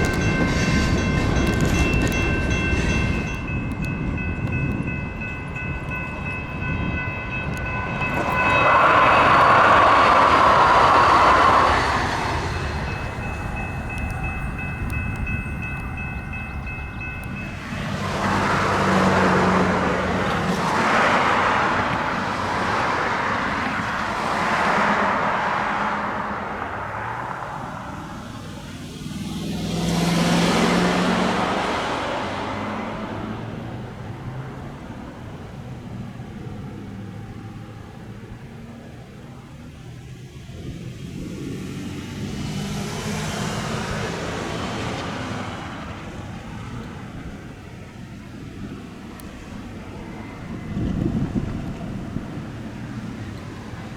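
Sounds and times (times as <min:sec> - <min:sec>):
light rail train passing: 0:00.0 - 0:53.9.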